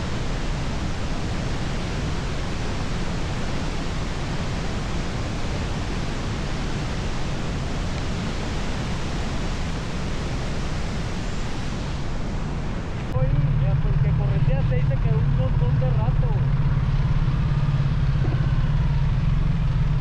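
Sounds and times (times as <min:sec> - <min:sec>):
wind rushing over microphone: 0:00.0 - 0:13.2.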